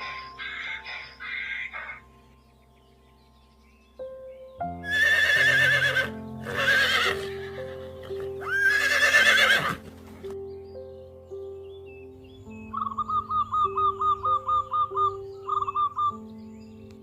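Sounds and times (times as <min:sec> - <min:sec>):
background music: 0:00.0 - 0:17.0
horse whinnying: 0:04.8 - 0:09.9.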